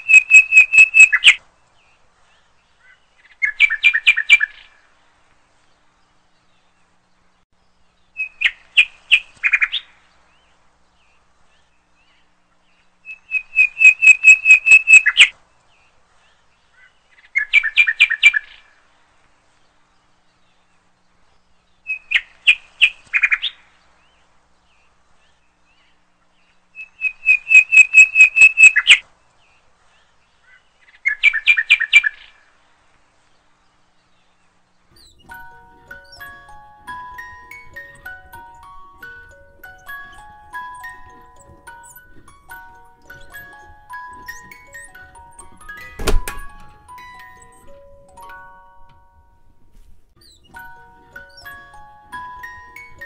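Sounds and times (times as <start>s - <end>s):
bird chirping in rapid trills: 0.0s - 1.4s, 13.1s - 15.3s, 26.8s - 29.0s, 34.9s - 49.2s, 50.2s - 53.0s.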